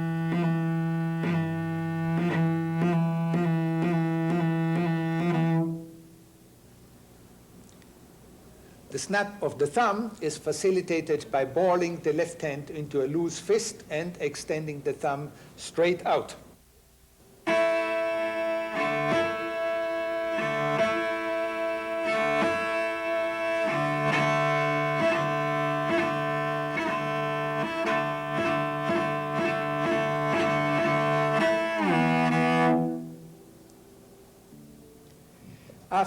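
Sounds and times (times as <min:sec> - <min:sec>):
bowed cello double stops: 0:00.0 - 0:06.0, 0:17.4 - 0:33.4.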